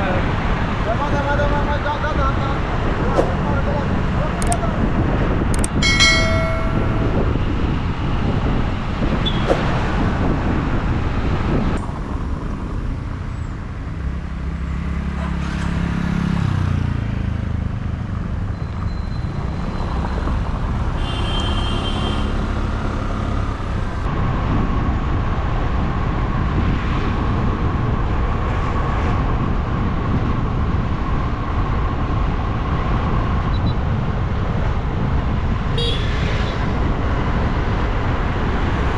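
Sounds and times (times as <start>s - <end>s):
road and traffic noise: 0.0s - 38.9s
vehicle horn toot: 21.0s - 22.5s, 35.8s - 36.4s.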